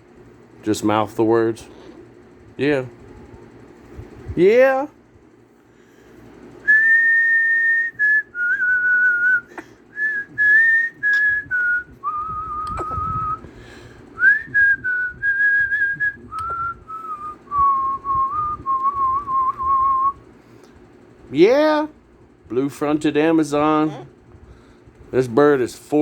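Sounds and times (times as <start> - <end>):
slow whistled tune: 6.6 - 13.5, 14.2 - 20.2.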